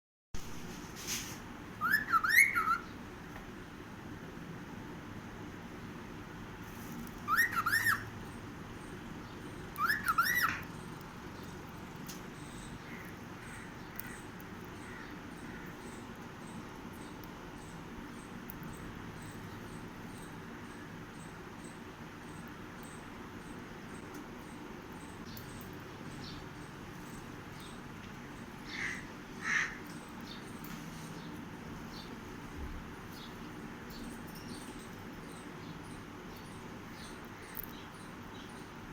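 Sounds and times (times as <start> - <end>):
steady low hum: 0.4 - 38.9
cockatiel whistling: 1.8 - 2.8, 7.3 - 8.0, 9.8 - 10.6.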